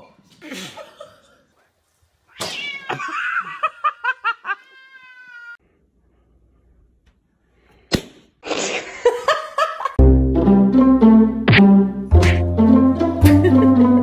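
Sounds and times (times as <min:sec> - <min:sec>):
cat yowling: 0:02.3 - 0:03.3, 0:04.6 - 0:05.6
sharp snap: 0:07.9 - 0:08.4, 0:11.5 - 0:12.5.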